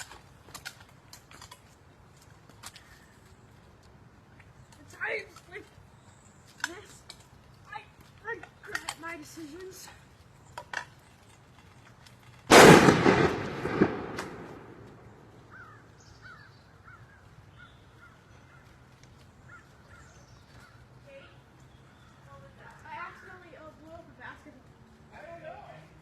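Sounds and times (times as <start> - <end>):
sharp crack: 10.6 - 15.9
basketball bursting bang: 12.5 - 14.8.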